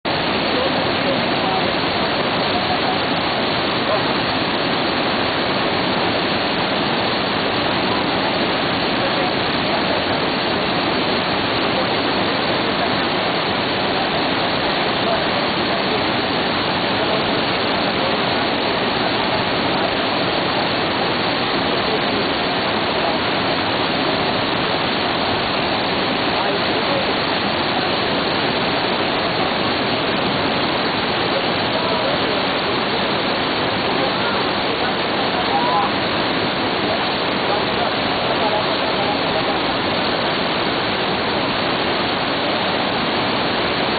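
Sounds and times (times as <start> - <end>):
waterfall rushing: 0.1 - 43.9.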